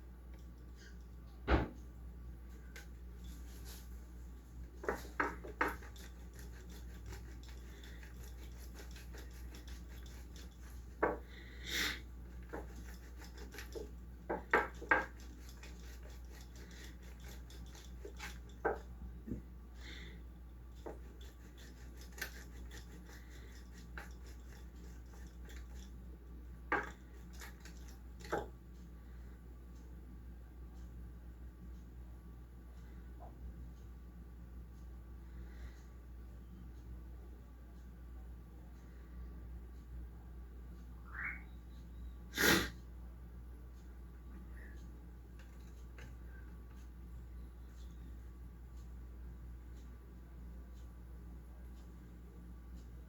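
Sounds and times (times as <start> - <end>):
faint low hum: 0.0 - 53.0
light rubbing: 2.7 - 18.9, 20.8 - 26.0
dishes knocking and clinking: 11.0 - 11.3, 14.3 - 15.2, 26.7 - 27.0.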